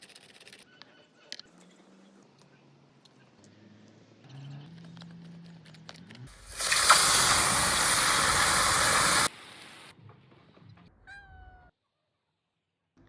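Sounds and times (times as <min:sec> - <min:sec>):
food sizzling in a frying pan: 0:06.3 - 0:09.9.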